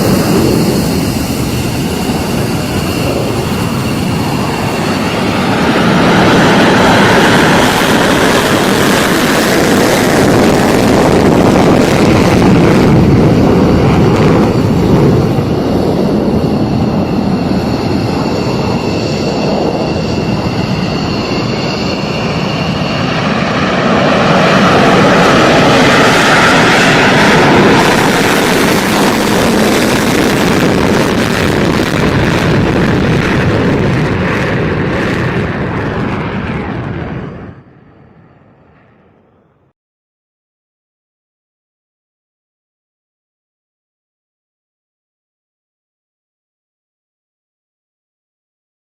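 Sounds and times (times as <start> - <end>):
fighter jet engines roaring: 0.0 - 39.7
high jet whine: 0.0 - 39.8.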